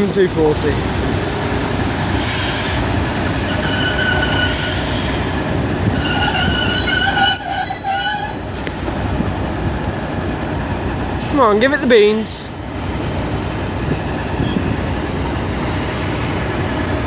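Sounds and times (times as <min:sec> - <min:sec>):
train wheels squealing on rails: 0:02.0 - 0:09.0, 0:12.8 - 0:17.0
hiss bursts: 0:02.2 - 0:03.5, 0:15.4 - 0:17.0.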